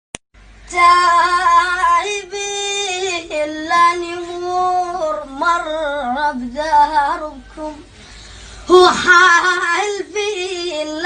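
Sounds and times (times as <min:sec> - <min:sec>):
child singing: 0:00.7 - 0:07.8, 0:08.7 - 0:11.0.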